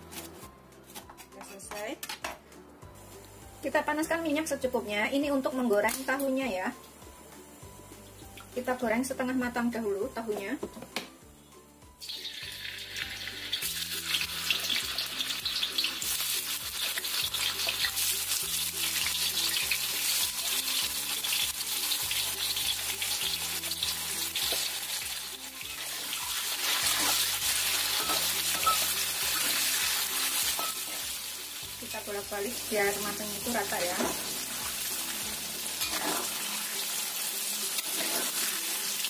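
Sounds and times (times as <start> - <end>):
tofu frying in hot oil: 12.0 - 39.0.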